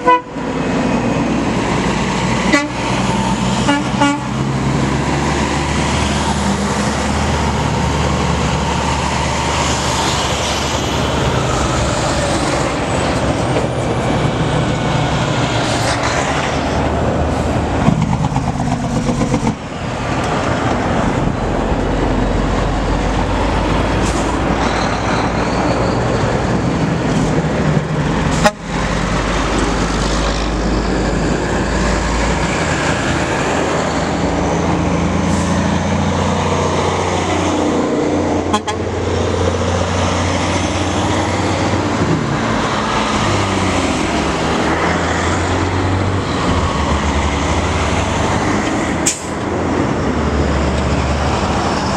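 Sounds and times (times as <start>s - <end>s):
truck horns: 0.0s - 0.7s, 2.4s - 4.5s, 28.2s - 29.0s, 38.3s - 39.1s
trucks driving past: 0.0s - 51.9s.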